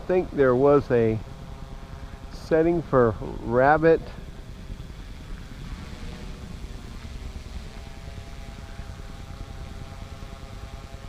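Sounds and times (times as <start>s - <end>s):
quadcopter propellers whining: 0.0s - 11.0s.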